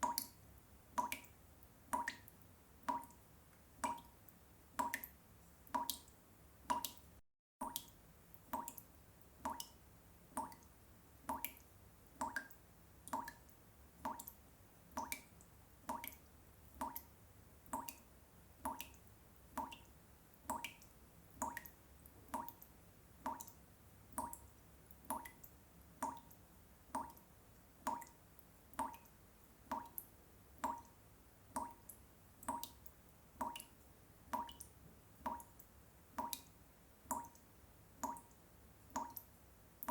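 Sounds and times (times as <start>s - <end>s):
water drops plopping: 7.6s - 9.8s, 11.3s - 11.6s, 14.1s - 14.4s, 16.8s - 17.1s, 31.6s - 32.8s, 33.4s - 33.7s, 34.4s - 34.7s.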